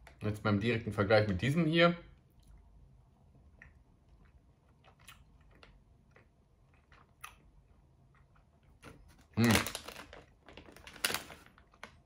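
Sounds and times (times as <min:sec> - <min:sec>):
faint chewing with wet mouth clicks: 0:02.2 - 0:08.9.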